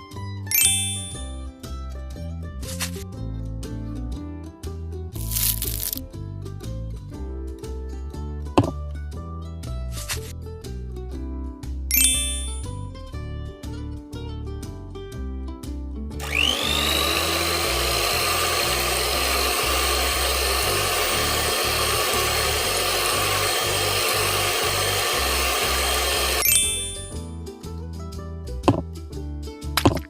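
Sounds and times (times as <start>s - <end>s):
electric mixer whining: 16.2s - 27.1s.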